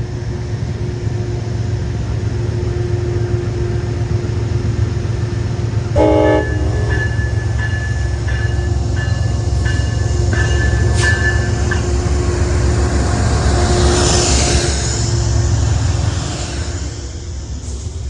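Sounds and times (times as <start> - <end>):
train rumbling past: 0.0 - 18.0
train horn note: 6.0 - 8.2.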